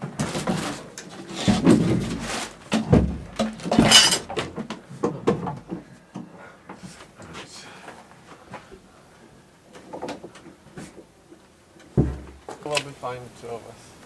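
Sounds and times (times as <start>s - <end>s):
knocks and clunks: 0.0s - 5.9s, 11.9s - 12.6s.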